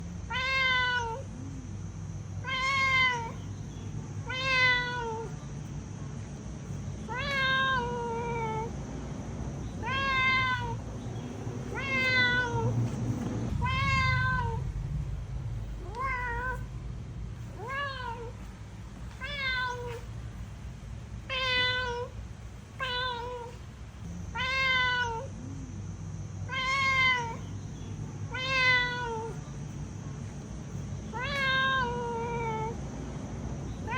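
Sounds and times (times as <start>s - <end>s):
cat meowing: 0.3s - 1.3s, 2.4s - 3.5s, 4.2s - 5.4s, 7.1s - 8.7s, 9.8s - 10.8s, 11.7s - 12.8s, 13.5s - 14.7s, 15.8s - 16.7s, 17.4s - 18.5s, 19.2s - 20.1s, 21.2s - 22.2s, 22.8s - 23.6s, 24.3s - 25.3s, 26.5s - 27.5s, 28.3s - 29.4s, 31.1s - 32.8s.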